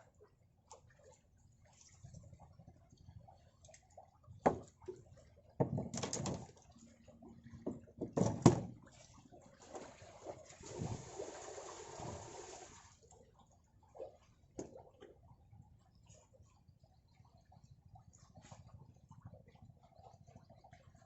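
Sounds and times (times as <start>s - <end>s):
water sloshing: 0.2s - 15.2s
rush of water: 9.6s - 13.0s.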